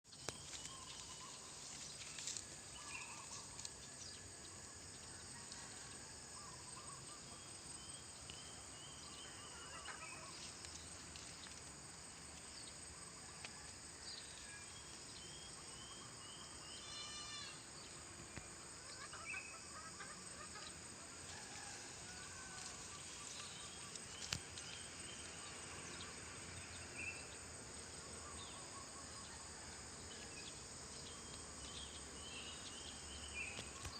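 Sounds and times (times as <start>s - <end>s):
insect drone: 0.1s - 33.9s.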